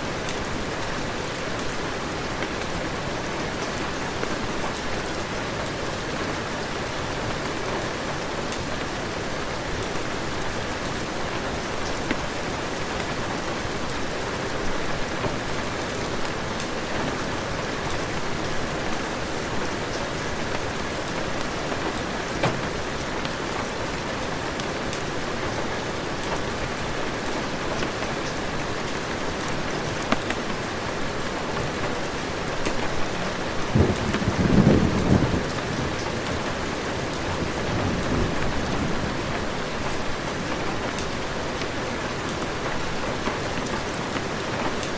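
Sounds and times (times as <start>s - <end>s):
heavy rain: 0.0s - 44.9s
thunder rumble: 33.7s - 36.0s.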